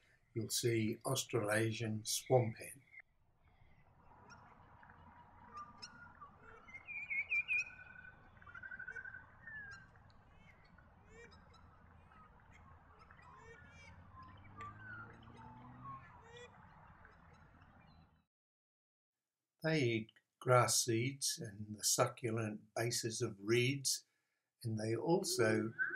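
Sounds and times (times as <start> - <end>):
sharp pulsed bird calls: 1.5 - 18.2, 25.0 - 25.9
bird trill: 2.2 - 18.2, 25.1 - 25.9
small bird chirps and whistles: 5.5 - 9.9, 25.4 - 25.9.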